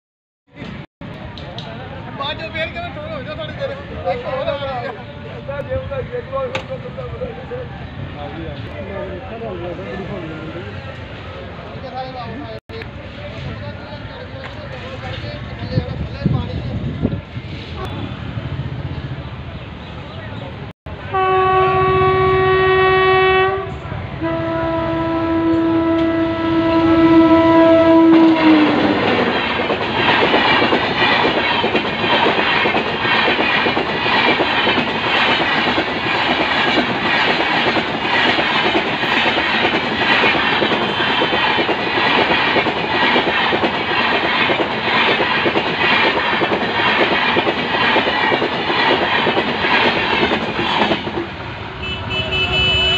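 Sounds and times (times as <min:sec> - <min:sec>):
train wheels clickety-clack: 0:12.7 - 0:16.8, 0:28.1 - 0:51.4
locomotive horn blast: 0:21.0 - 0:29.0, 0:51.8 - 0:52.9.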